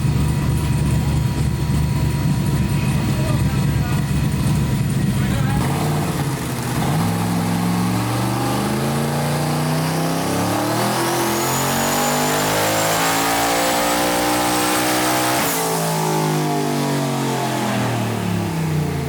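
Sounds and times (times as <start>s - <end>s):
engine revving on a dyno: 5.4s - 19.0s.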